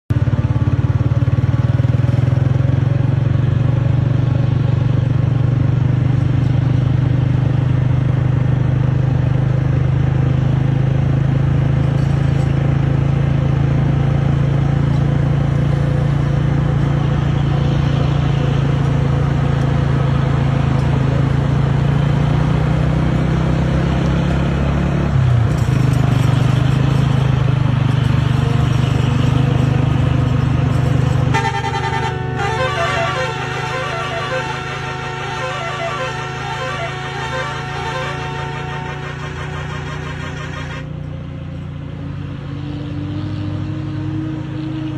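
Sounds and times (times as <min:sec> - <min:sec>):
diesel truck engine running: 0:00.1 - 0:42.4.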